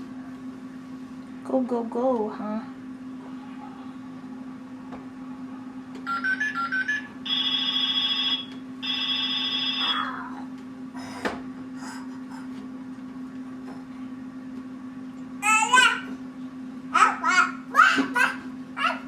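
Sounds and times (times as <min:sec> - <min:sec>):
ringing electronic tones: 0:06.1 - 0:10.0.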